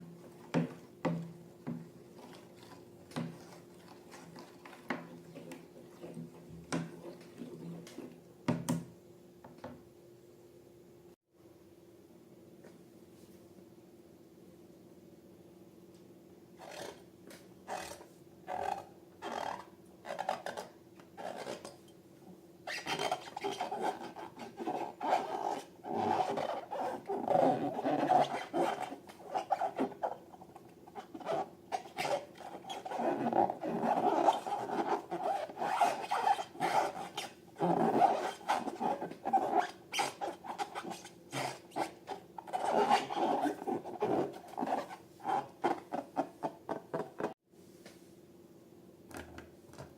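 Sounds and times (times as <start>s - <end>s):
rubber balloons squeaking: 22.7s - 47.4s.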